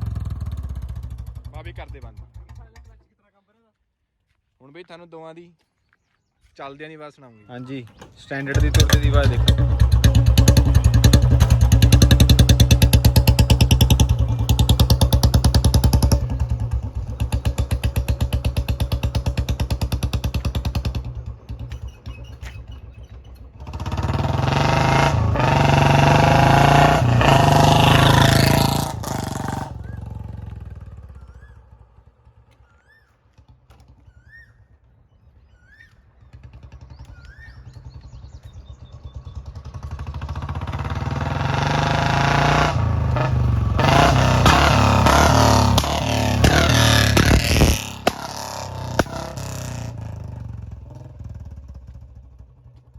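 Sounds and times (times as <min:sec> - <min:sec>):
motorcycle engine thumping: 0:00.1 - 0:03.1, 0:07.8 - 0:24.4, 0:27.1 - 0:35.0, 0:43.1 - 0:52.9.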